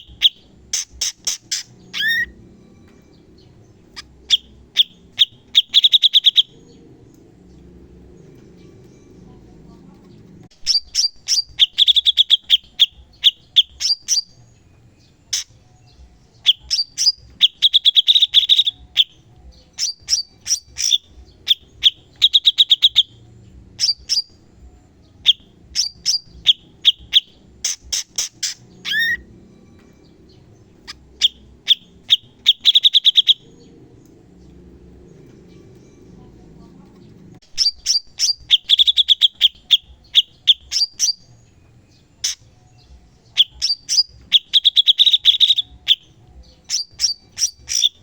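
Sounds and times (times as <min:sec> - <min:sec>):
bird chips and rattling trills: 0:00.0 - 0:09.0, 0:10.0 - 0:24.5, 0:25.2 - 0:36.4, 0:37.0 - 0:48.0.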